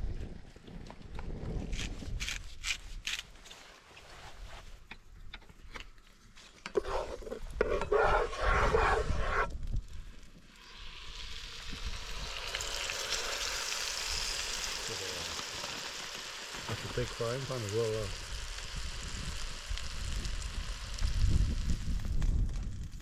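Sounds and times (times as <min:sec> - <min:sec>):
steak sizzling in a pan: 0:10.5 - 0:22.0.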